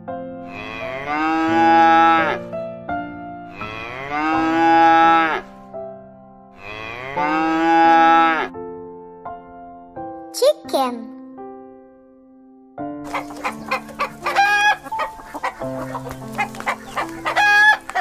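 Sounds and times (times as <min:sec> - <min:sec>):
cow mooing: 0:00.5 - 0:02.4, 0:03.5 - 0:05.4, 0:06.6 - 0:08.5
keyboard tune: 0:13.0 - 0:18.0.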